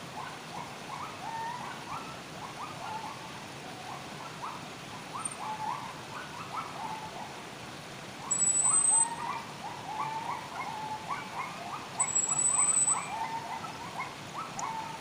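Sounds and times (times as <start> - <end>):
faint steady hiss: 0.0 - 15.0
birds calling in chorus: 8.2 - 15.0
thin high whistle: 8.3 - 9.2.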